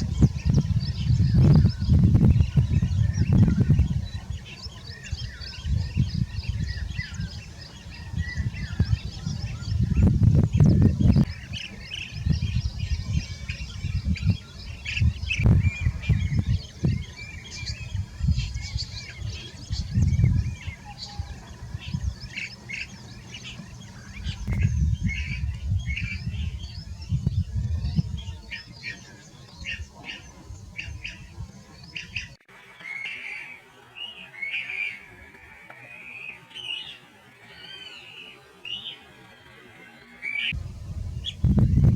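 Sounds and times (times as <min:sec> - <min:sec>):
bee-eaters chirping: 0:00.0 - 0:40.6
low rumbling bursts: 0:40.5 - 0:41.9.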